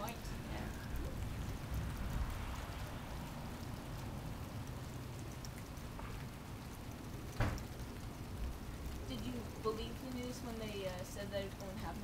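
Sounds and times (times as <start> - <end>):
low rumble: 0.0 - 5.9
light rain falling: 0.0 - 12.0.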